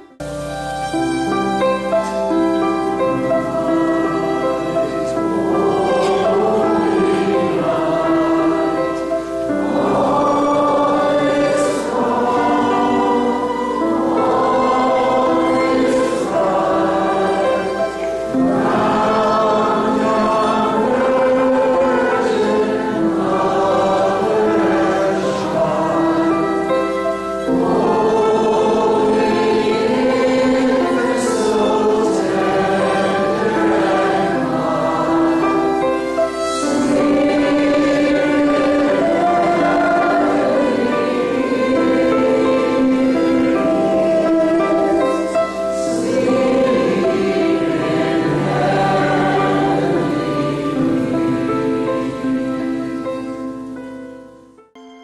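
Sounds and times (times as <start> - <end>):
choir singing a slow hymn: 0.0 - 54.1.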